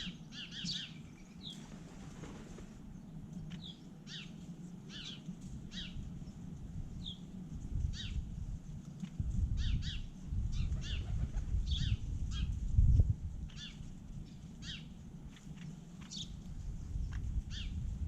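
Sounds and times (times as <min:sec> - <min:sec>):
bird chirping: 0:00.0 - 0:01.6, 0:16.0 - 0:17.8.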